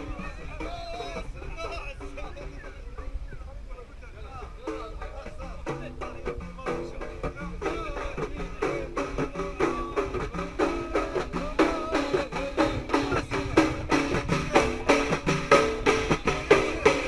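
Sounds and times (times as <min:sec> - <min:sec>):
frame drums beating: 0:00.0 - 0:03.2, 0:04.4 - 0:17.0
chorus chanting in unison: 0:07.6 - 0:17.0.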